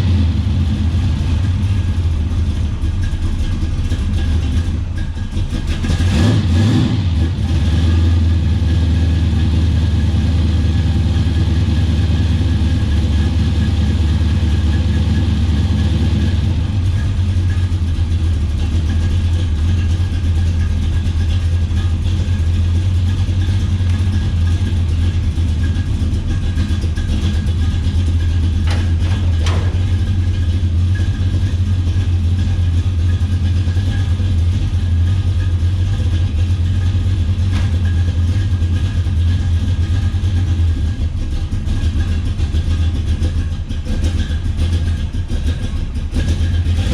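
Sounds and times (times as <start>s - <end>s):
car engine idling loudly: 0.0s - 46.9s
engine revving: 5.4s - 18.0s, 46.1s - 46.9s.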